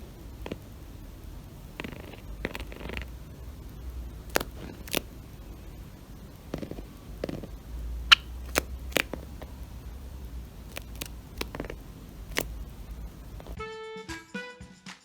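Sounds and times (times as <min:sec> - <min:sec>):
bird tapping on mats: 0:04.3 - 0:05.2, 0:06.4 - 0:09.8, 0:10.5 - 0:13.6.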